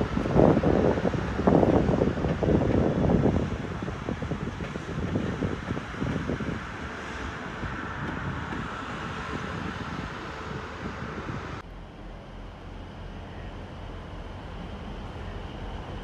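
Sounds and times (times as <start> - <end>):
wind buffeting microphone: 0.0 - 11.6
low rumble of approaching train: 0.0 - 16.0
passing train: 0.0 - 16.0.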